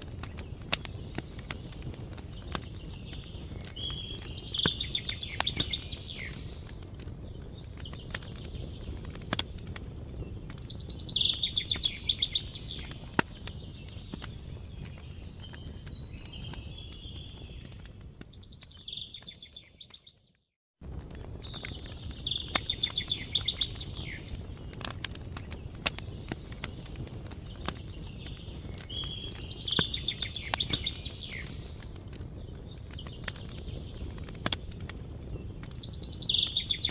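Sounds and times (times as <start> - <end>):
campfire crackling and popping: 0.0 - 36.9
songbird trilling: 10.7 - 13.0, 21.8 - 24.2, 35.9 - 36.9.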